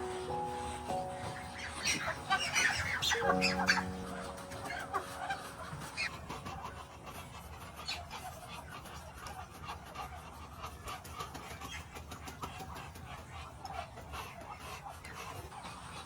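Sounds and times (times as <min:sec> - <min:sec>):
ducks calling: 0:00.0 - 0:16.0.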